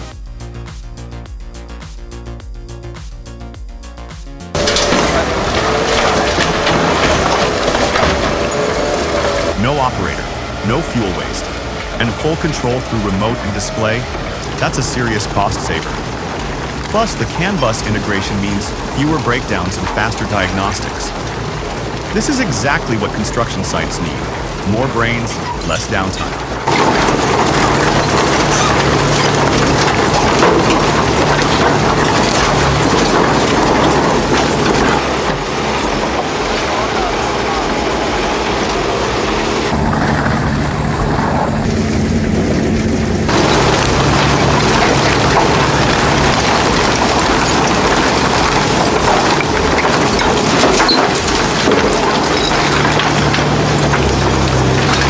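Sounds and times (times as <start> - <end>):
material crunching and crackling: 4.5 - 11.5, 26.3 - 35.6, 39.7 - 55.0
shredding machine drone: 4.5 - 55.0.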